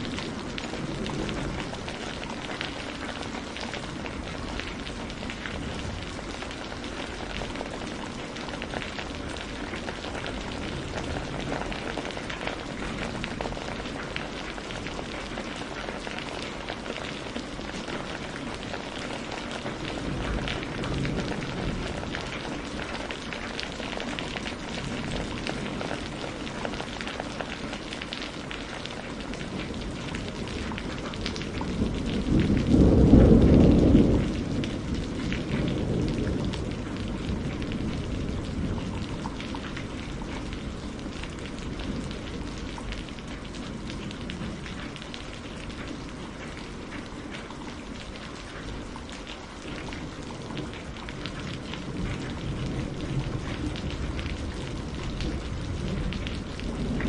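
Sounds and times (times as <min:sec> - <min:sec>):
steady rain pattering: 0:00.0 - 0:57.0
thunder rolling: 0:19.2 - 0:23.4, 0:30.6 - 0:42.1.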